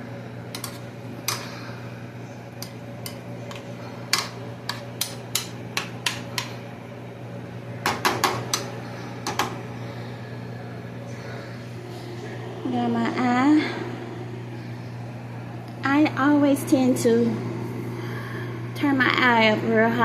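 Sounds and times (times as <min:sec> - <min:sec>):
steady low hum: 0:00.0 - 0:20.0
utensil tapping against a pot: 0:02.6 - 0:06.5.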